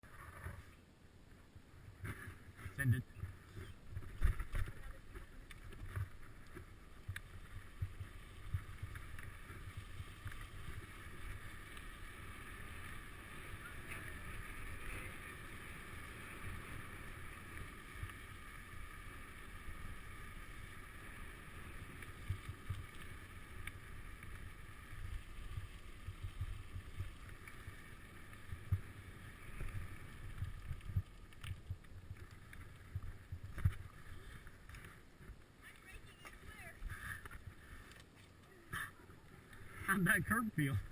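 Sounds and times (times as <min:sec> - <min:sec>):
bicycle rolling hiss: 0:02.0 - 0:35.8, 0:36.4 - 0:39.9.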